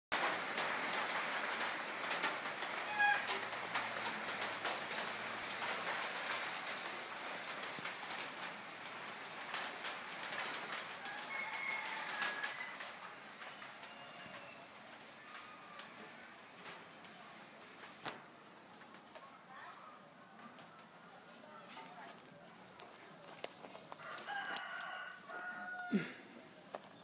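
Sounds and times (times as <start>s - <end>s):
steady rustling hiss: 0.2s - 19.3s.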